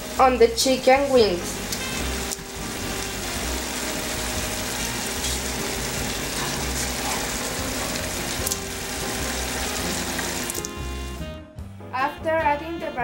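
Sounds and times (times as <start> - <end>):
chicken wings sizzling: 0.0 - 11.3
quiet background music: 0.0 - 13.0
sauce pouring: 1.5 - 11.2.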